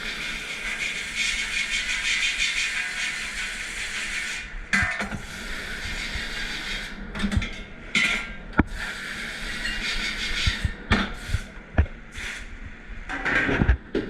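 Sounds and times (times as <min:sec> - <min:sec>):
dishes and racks clattering: 0:07.2 - 0:08.4, 0:13.1 - 0:14.0
machinery rushing hiss: 0:08.8 - 0:12.6.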